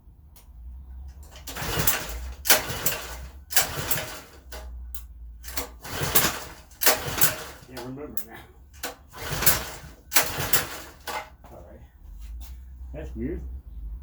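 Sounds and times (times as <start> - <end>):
recoil starter pulls: 1.1 - 11.5.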